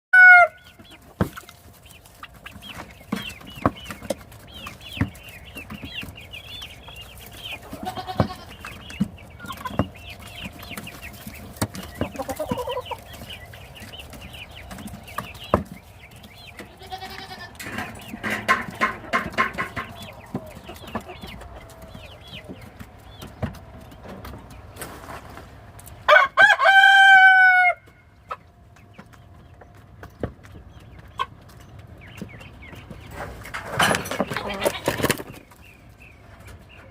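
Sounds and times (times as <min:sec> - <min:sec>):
rooster crowing: 0:00.2 - 0:00.6, 0:26.1 - 0:28.0
chickens clucking: 0:00.2 - 0:36.9.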